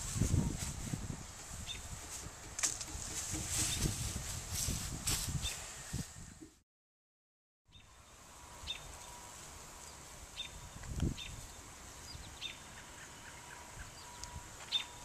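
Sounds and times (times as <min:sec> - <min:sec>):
faint outdoor ambience: 0:00.0 - 0:06.6, 0:07.7 - 0:15.0.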